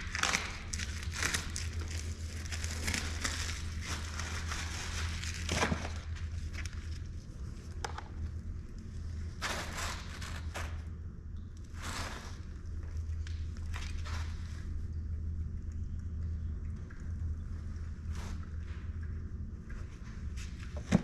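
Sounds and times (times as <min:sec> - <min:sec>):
hands crinkling and scraping: 0:00.0 - 0:10.8
steady low hum: 0:00.0 - 0:21.0.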